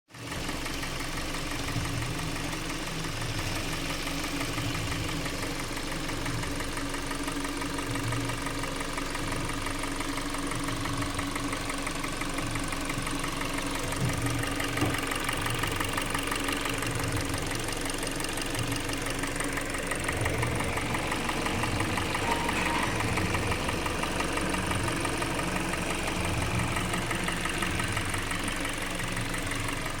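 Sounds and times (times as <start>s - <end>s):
car engine knocking: 0.2s - 30.0s.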